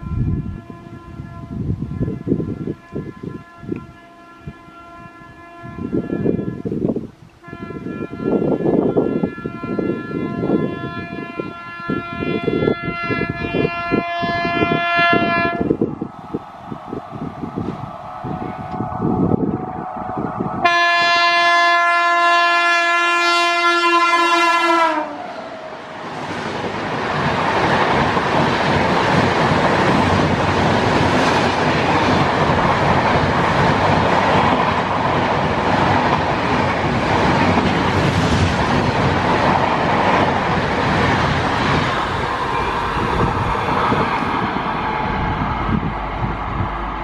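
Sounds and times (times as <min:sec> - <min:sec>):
locomotive horn blast: 0:00.0 - 0:25.4
train wheels on rails: 0:24.6 - 0:47.0.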